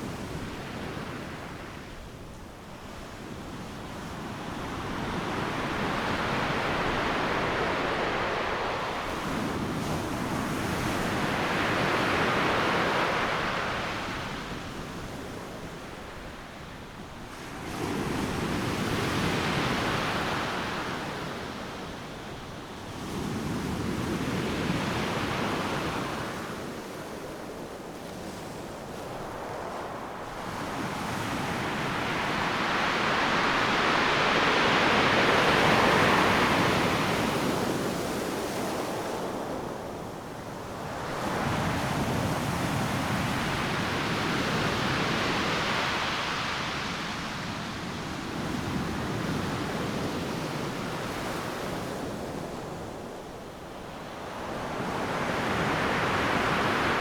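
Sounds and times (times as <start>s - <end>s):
surf breaking on a beach: 4.2s - 14.6s, 23.3s - 57.0s.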